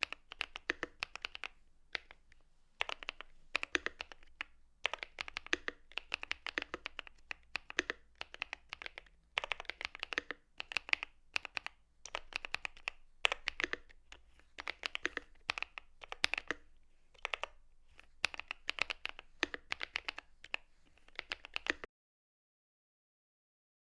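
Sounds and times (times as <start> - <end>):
mechanical keyboard typing: 0.0 - 21.9.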